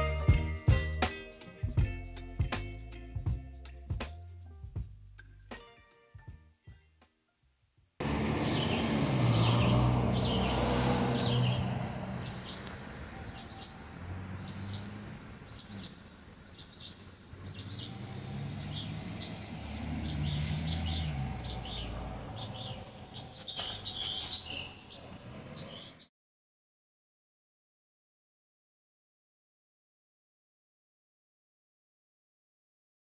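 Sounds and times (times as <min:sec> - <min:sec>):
small birds chirping: 0:08.4 - 0:26.1.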